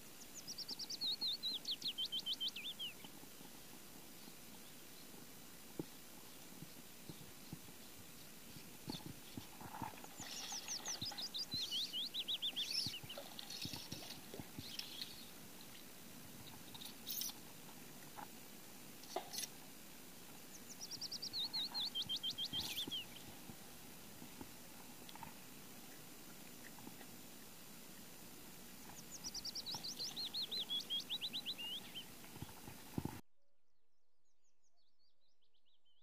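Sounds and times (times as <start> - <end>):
small bird singing: 0.0 - 3.2, 6.3 - 15.8, 16.4 - 17.4, 20.4 - 23.4, 28.8 - 32.6.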